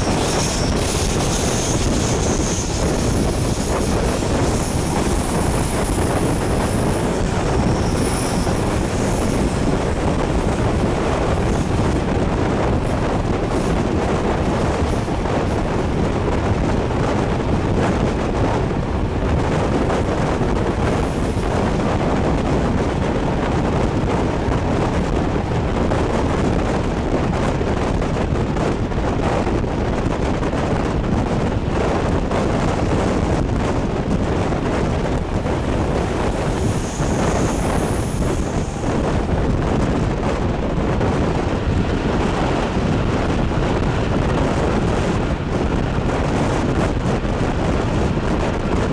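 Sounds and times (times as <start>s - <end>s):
train rumbling: 0.0s - 48.9s
wind buffeting microphone: 0.0s - 48.9s
faint high squeal: 7.6s - 9.2s.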